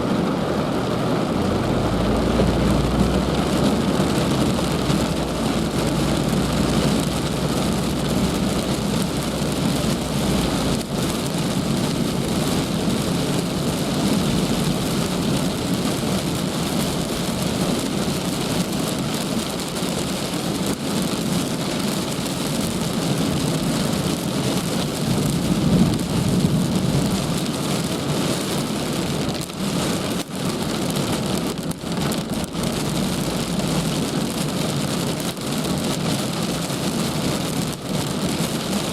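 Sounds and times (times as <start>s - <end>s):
heavy rain falling: 0.0s - 38.9s
low rumble: 0.9s - 17.6s.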